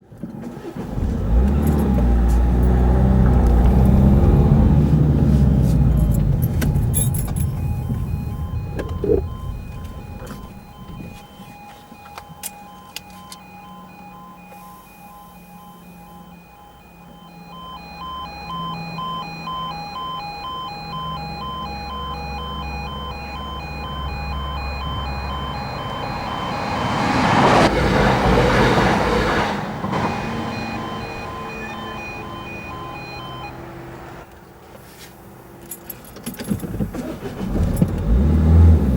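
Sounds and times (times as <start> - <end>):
level crossing alarm pulsing: 2.7 - 34.3
diesel train passing: 22.6 - 34.3.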